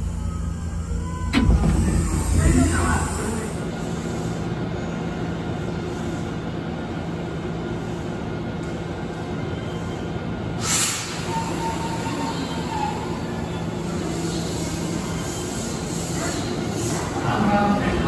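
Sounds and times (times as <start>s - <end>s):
train equipment humming: 0.0s - 18.0s
air hiss: 10.6s - 11.3s.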